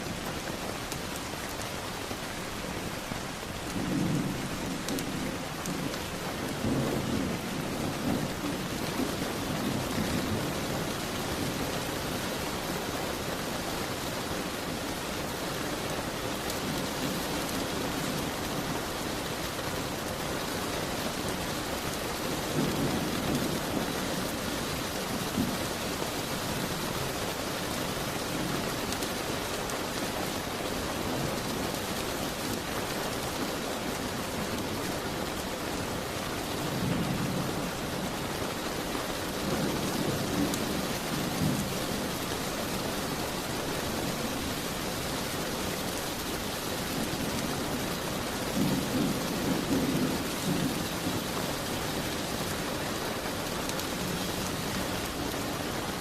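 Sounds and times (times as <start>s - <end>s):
heavy rain hissing on window: 0.0s - 56.0s
thunder rumbling: 3.0s - 11.6s.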